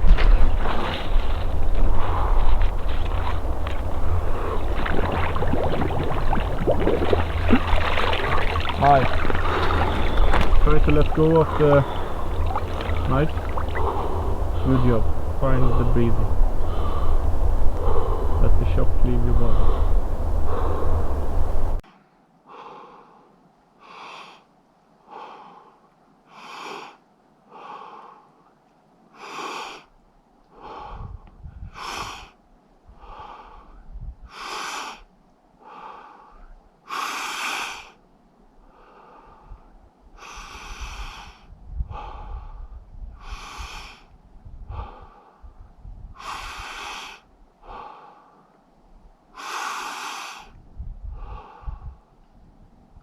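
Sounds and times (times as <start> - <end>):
man breathing heavily: 0.0 - 21.4, 30.6 - 32.3.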